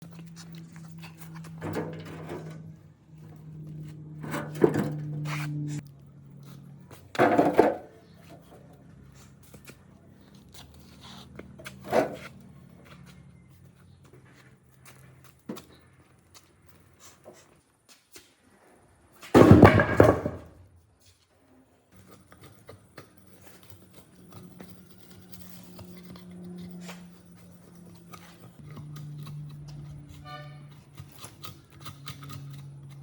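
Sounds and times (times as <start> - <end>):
wood knocking and scraping: 19.4 - 20.5.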